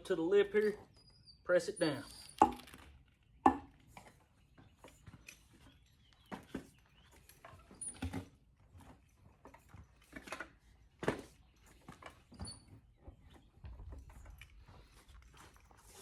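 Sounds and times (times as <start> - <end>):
bead breaker clicks and creaks: 2.0 - 3.2.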